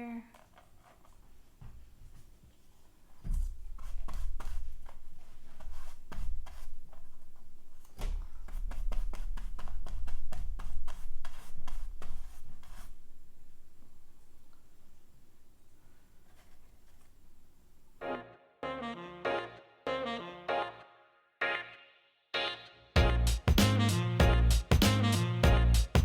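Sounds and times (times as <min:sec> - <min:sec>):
paper rubbing strokes: 0:02.7 - 0:13.2.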